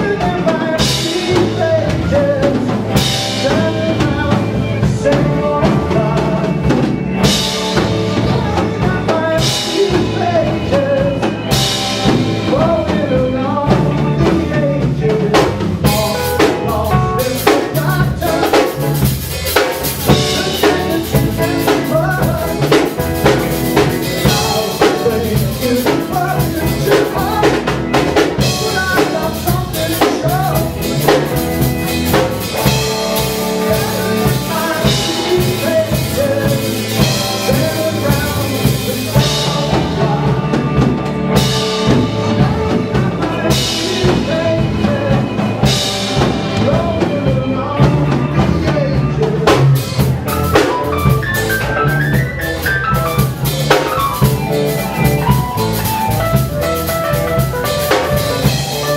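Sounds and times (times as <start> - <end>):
drum kit beat: 0.0 - 58.9
live band playing: 0.0 - 58.9.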